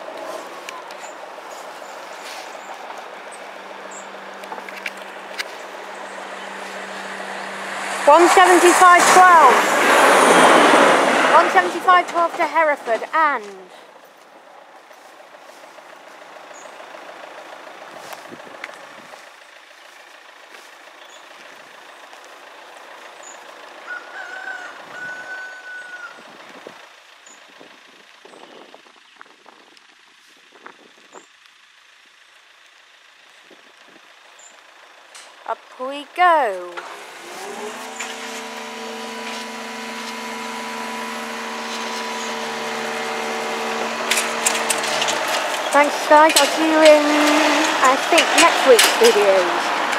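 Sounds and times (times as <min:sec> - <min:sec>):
train passing: 0:00.0 - 0:13.8, 0:35.5 - 0:49.9
barrier motor humming: 0:00.0 - 0:23.8, 0:31.7 - 0:49.9.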